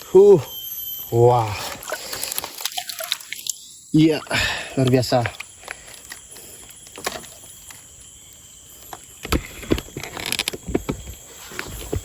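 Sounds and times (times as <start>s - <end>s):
handling knocks and rustles: 8.8s - 12.0s
sharp taps and thumps: 9.2s - 12.0s.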